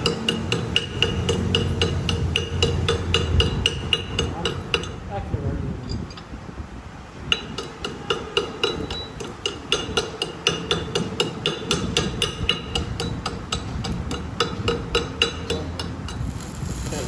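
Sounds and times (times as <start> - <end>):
hammer blows on steel: 7.2 - 16.3.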